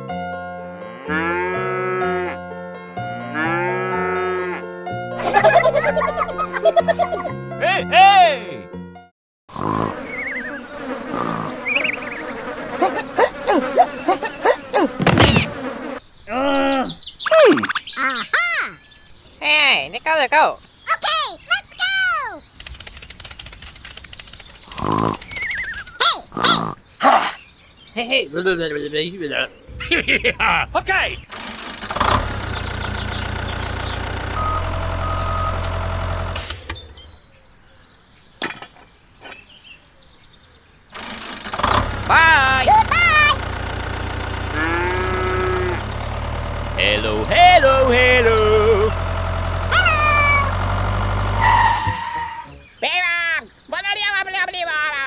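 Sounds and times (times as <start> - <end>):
steady buzzing: 9.6 - 16.0, 29.7 - 36.9, 41.2 - 51.4
squeaky sliding chirps: 10.0 - 16.0, 17.2 - 19.3, 23.4 - 26.7, 42.6 - 43.4, 49.7 - 50.6
tractor engine running: 14.8 - 15.8, 29.7 - 37.2, 41.0 - 52.1
short high beeps: 17.3 - 19.2.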